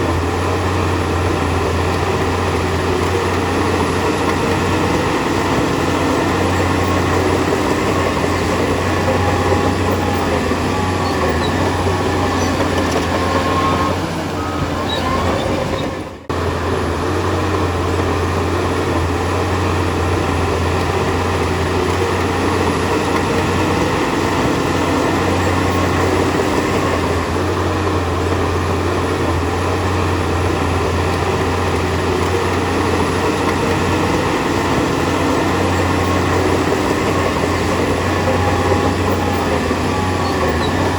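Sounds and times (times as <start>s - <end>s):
bulldozer diesel engine running: 0.0s - 40.9s
metallic track noise: 1.3s - 16.4s, 20.6s - 27.3s, 30.9s - 40.9s.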